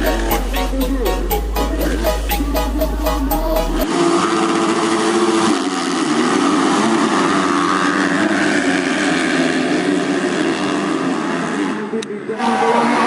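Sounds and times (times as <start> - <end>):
dirt bike engines racing: 3.8 - 13.0.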